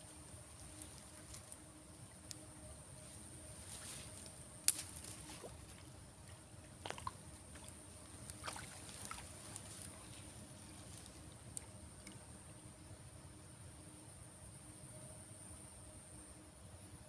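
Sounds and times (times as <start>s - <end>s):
steady high-pitched whine: 0.0s - 17.0s
water sloshing and lapping: 5.0s - 12.3s.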